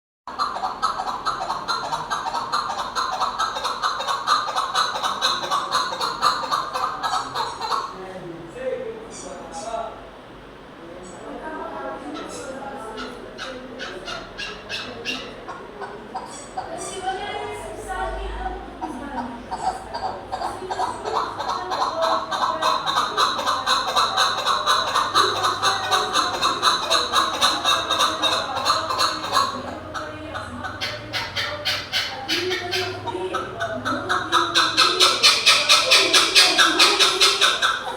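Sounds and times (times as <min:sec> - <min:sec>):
partridge clucking calls: 0:00.3 - 0:08.1, 0:12.0 - 0:37.9.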